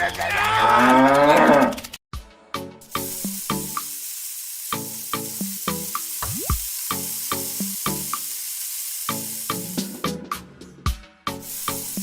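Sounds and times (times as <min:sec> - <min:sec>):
steady high hiss: 0:02.8 - 0:10.3, 0:11.4 - 0:12.0
repeating pitched notes music: 0:06.2 - 0:06.7.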